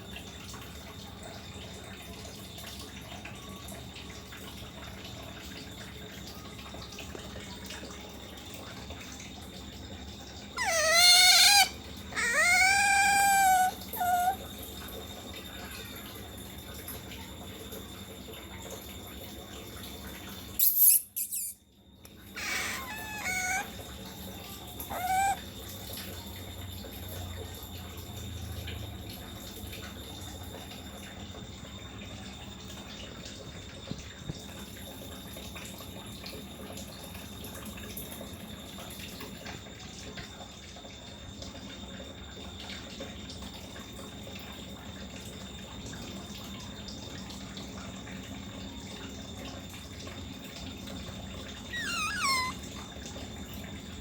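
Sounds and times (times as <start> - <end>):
otter squeaking: 10.6 - 14.4, 22.3 - 23.8, 24.4 - 25.4, 51.7 - 52.7.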